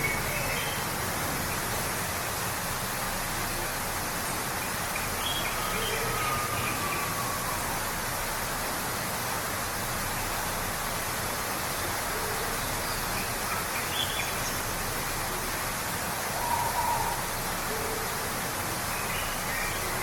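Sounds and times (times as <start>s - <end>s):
waterfall rushing: 0.0s - 20.0s
faint bird calls: 16.3s - 18.1s.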